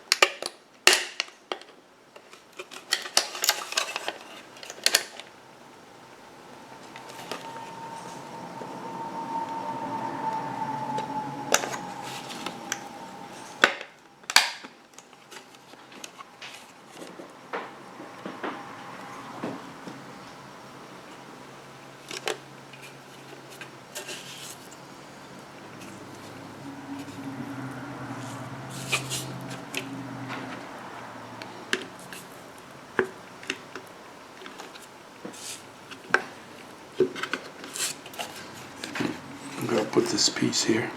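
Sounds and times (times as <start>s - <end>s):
steady high hum: 5.2s - 13.7s.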